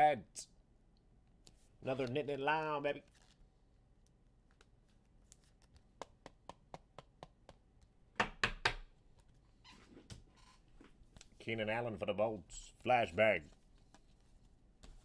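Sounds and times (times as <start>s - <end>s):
trading cards clicking and tapping: 5.3s - 8.9s.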